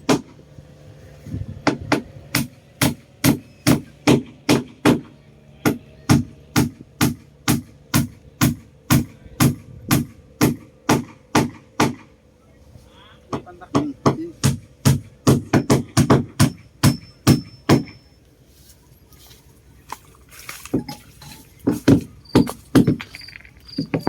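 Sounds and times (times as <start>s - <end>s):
hammer blows on wood: 1.6s - 12.1s, 13.3s - 18.1s.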